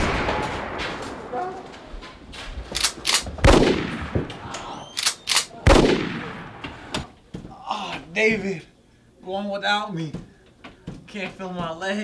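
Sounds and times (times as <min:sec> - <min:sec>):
gunshots: 0:00.0 - 0:01.3, 0:02.8 - 0:07.0.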